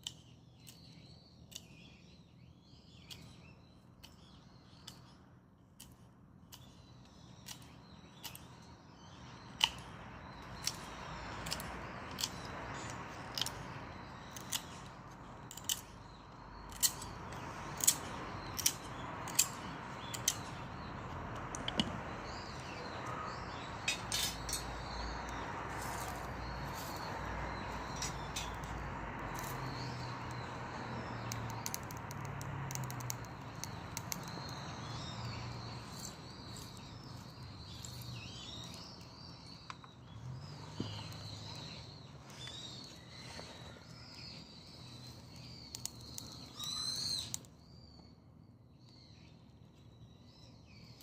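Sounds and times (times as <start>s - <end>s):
burning branches crackling: 24.3s - 38.8s.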